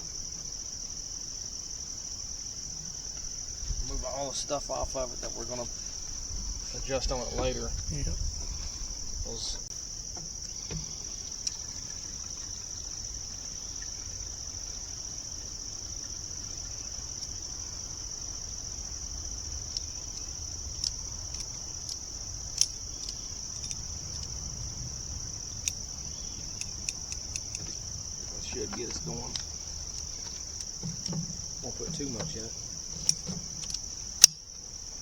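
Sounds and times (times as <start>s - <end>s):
insects chirping: 0.0s - 35.0s
sharp clicks and light knocks: 19.7s - 24.4s, 26.5s - 34.4s.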